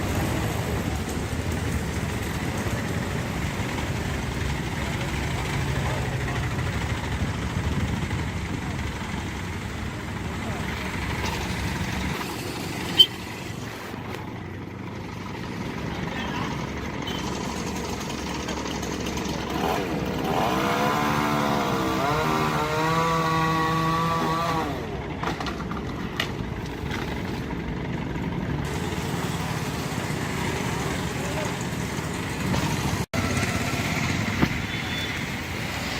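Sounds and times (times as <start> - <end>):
engine: 0.0 - 35.9
outdoor background noise: 0.0 - 35.9.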